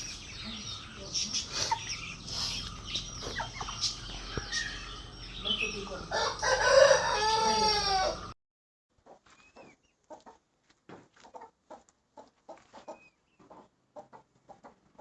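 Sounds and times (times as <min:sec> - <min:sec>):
chickens clucking: 0:00.0 - 0:08.3, 0:09.0 - 0:15.0
rooster crowing: 0:06.1 - 0:08.4.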